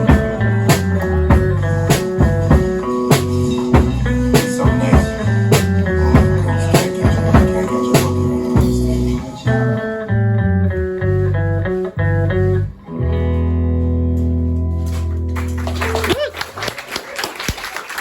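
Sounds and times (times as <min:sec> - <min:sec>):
drum kit: 0:00.0 - 0:09.6
bass guitar: 0:00.0 - 0:16.2
electric guitars: 0:00.0 - 0:16.2.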